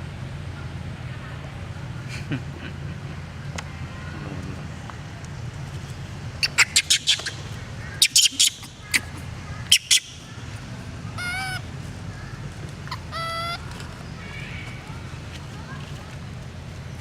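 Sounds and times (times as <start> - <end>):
low background hum: 0.0 - 17.0
monkey squeaks and calls: 6.4 - 10.3, 11.2 - 11.6, 12.9 - 13.7.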